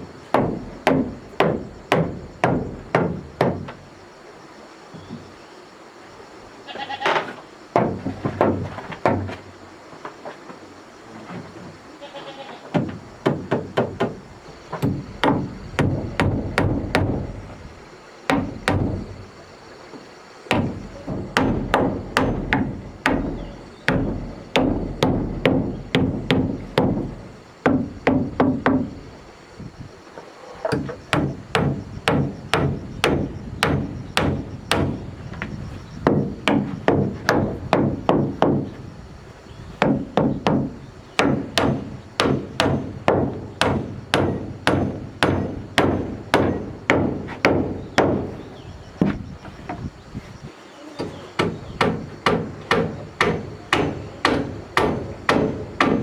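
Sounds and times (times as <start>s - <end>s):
hammer striking wood: 0.3s - 3.9s, 7.8s - 9.5s, 12.7s - 17.5s, 18.3s - 19.3s, 20.5s - 29.1s, 30.7s - 38.8s, 39.8s - 49.2s, 51.0s - 56.0s.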